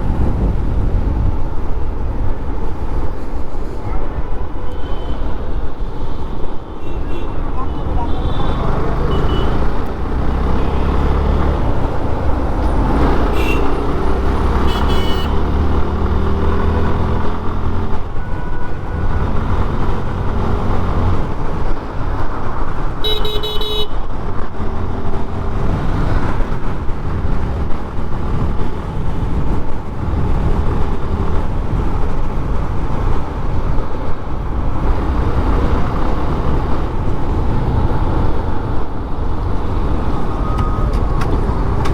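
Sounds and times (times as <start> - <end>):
motorcycle engine and wind rumble: 0.0 - 41.9
vehicle horns honking: 6.8 - 9.8, 10.4 - 11.2, 12.8 - 15.6, 18.1 - 19.2, 23.0 - 24.0.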